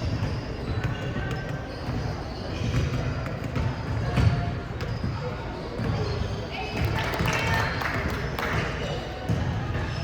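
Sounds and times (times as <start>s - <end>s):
basketball dribbling on court: 0.0s - 5.2s
shoe squeaks: 0.0s - 6.8s
gym hubbub: 0.0s - 10.0s.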